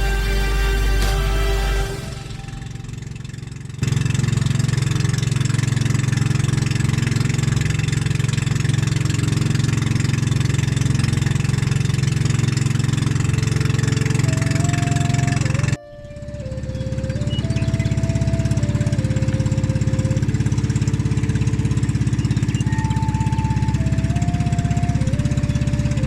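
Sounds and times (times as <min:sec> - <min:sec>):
motor engine running: 0:00.0 - 0:26.0.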